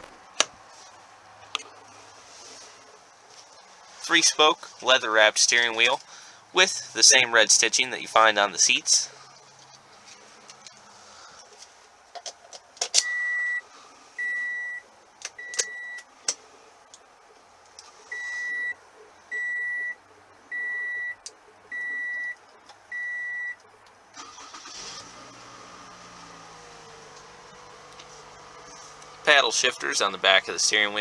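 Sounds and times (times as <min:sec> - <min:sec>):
car warning chime beeps: 0:13.0 - 0:13.6, 0:14.2 - 0:14.8, 0:15.4 - 0:16.1, 0:18.1 - 0:23.6
car engine cranking and idling: 0:23.6 - 0:31.0.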